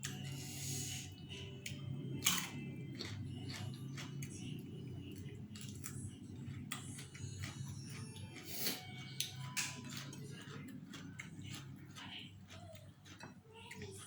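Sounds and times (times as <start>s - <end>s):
low hum: 0.0s - 12.5s
person chewing noodle soup: 0.0s - 14.0s.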